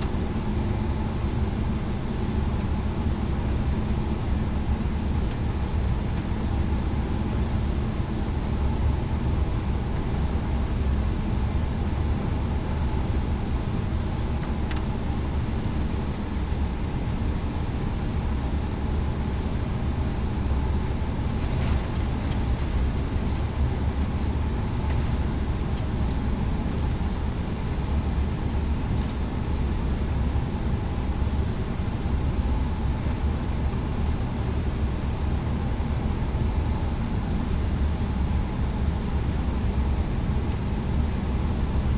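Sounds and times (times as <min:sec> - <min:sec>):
jet engines idling: 0:00.0 - 0:29.8.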